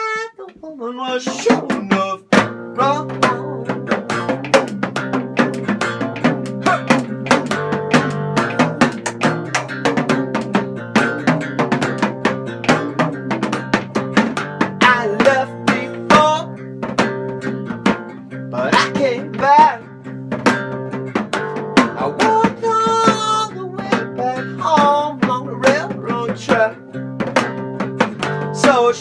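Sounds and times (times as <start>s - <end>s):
steady percussion beat: 1.2s - 28.8s
plucked strings quick notes: 1.3s - 28.8s.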